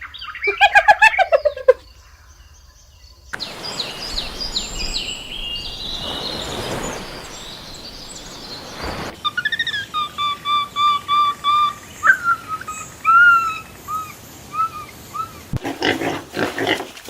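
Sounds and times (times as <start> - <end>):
bird chirping falling notes: 3.4 - 9.2
bird-like whistling call: 3.4 - 9.2
outdoor hiss: 3.4 - 9.2.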